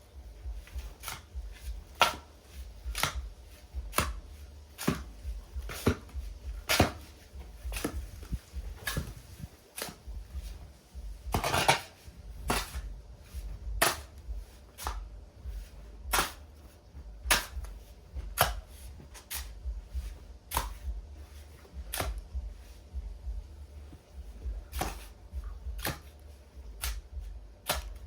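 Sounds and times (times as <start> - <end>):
steady low rumble: 0.0 - 28.0
hard object knocking: 10.1 - 15.1.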